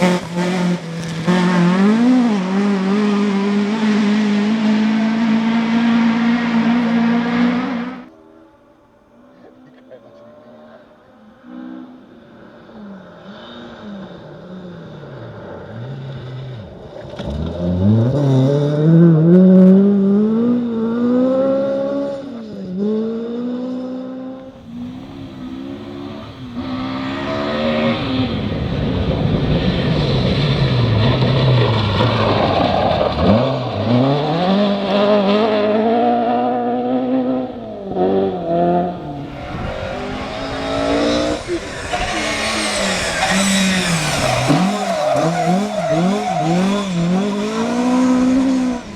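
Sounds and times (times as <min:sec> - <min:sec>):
rally car engine revving: 0:00.0 - 0:08.2, 0:09.3 - 0:48.9
loud rushing noise: 0:24.5 - 0:32.7, 0:38.7 - 0:48.9.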